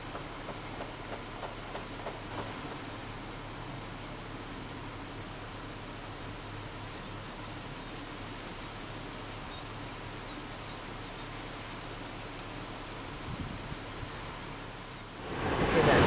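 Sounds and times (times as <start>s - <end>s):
outdoor background hiss: 0.0s - 16.0s
faint high bird chirps: 6.0s - 14.9s.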